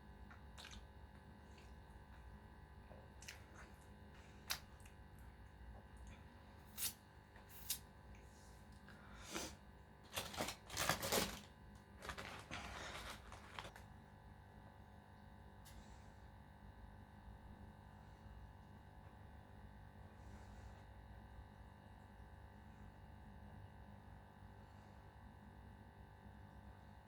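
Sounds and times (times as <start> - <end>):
food crunching: 12.0 - 13.8
rustling: 12.0 - 13.8.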